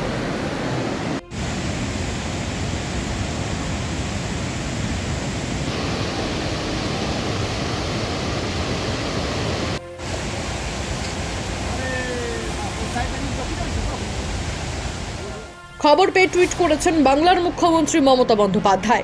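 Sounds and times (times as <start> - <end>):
rushing river roar: 0.0 - 15.5.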